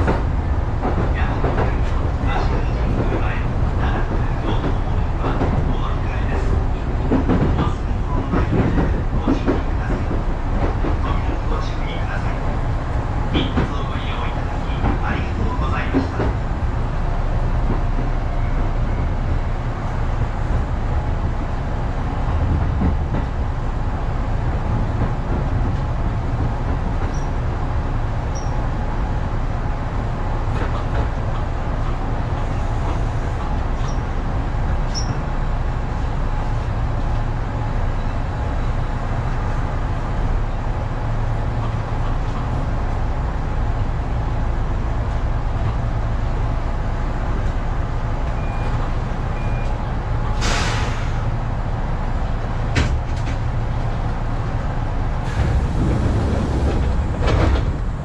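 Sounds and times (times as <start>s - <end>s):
train wheels rumbling on track: 0.0s - 58.0s
short high squeaks: 34.9s - 35.2s.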